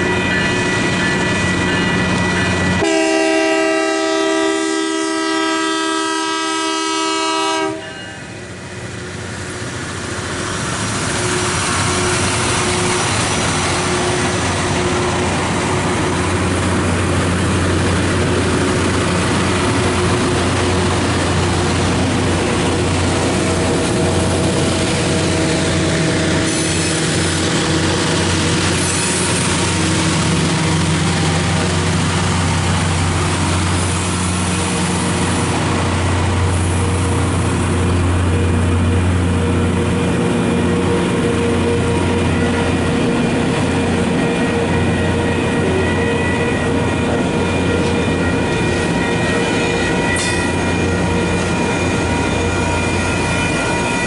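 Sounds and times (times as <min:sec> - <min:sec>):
train horn: 0:00.0 - 0:08.3, 0:11.2 - 0:15.3, 0:38.2 - 0:54.0
train engine hum and rail noise: 0:00.0 - 0:54.0.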